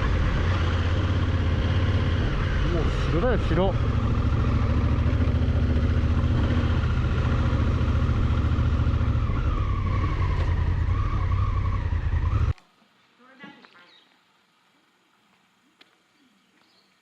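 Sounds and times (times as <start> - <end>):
motorcycle engine running: 0.0 - 12.6
road and wind noise: 0.0 - 12.6.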